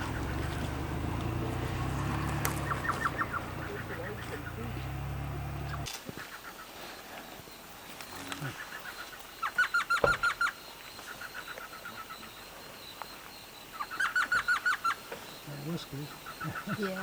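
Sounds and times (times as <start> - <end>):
bird calling sharp notes: 1.8 - 6.4.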